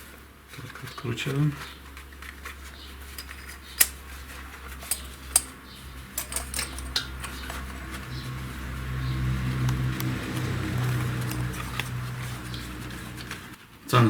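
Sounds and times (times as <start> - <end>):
metallic clicks of hand tools: 4.8 - 5.6.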